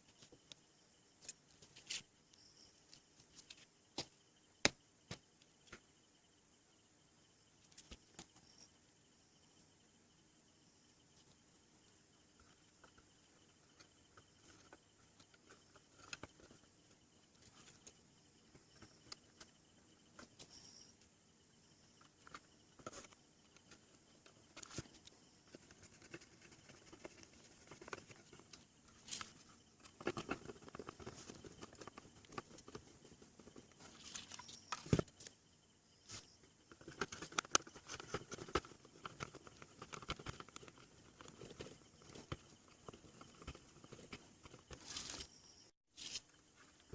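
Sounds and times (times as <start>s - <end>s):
small parts clicking and tapping: 12.4s - 21.1s, 36.6s - 45.3s.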